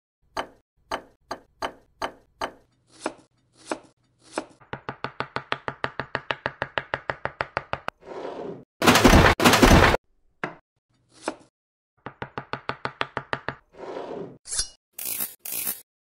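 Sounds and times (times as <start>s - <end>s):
knife slicing onion on cutting board: 0.3s - 7.8s, 11.0s - 13.6s.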